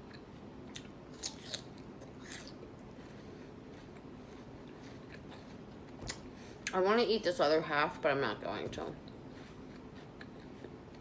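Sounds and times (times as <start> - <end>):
person chewing crisp food: 0.0 - 6.7, 9.0 - 11.0
low room hum: 0.0 - 11.0.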